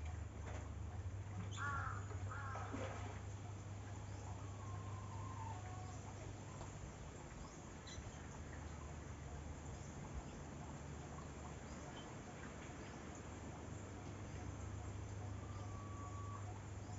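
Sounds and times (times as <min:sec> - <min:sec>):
steady low hum: 0:00.0 - 0:16.9
faint bird calls: 0:00.9 - 0:16.9.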